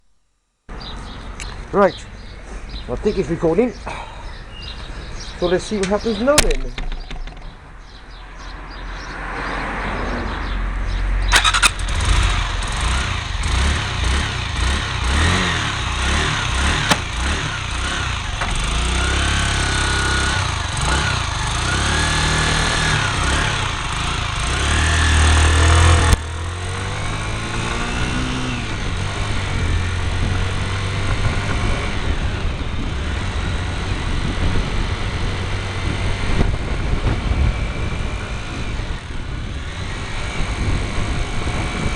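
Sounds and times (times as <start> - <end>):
motorcycle engine running: 11.3 - 41.9.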